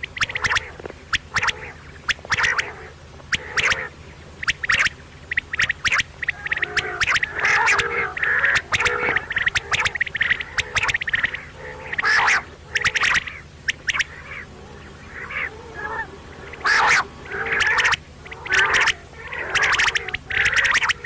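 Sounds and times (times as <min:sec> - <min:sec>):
quail calling: 0:00.0 - 0:21.0.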